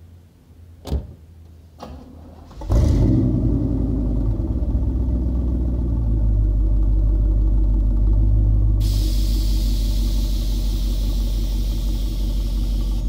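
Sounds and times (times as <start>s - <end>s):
door shutting: 0.8s - 1.2s
car engine starting and idling: 1.7s - 13.0s.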